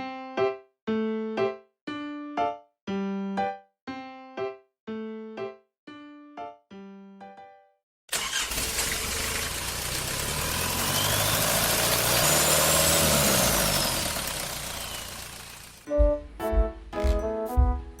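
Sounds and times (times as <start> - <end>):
motor running: 8.4 - 15.9.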